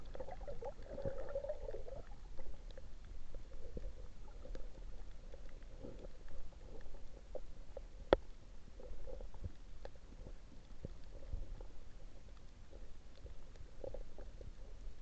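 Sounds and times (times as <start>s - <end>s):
underwater water gurgling: 0.0s - 15.0s
faint clicks: 2.4s - 8.4s.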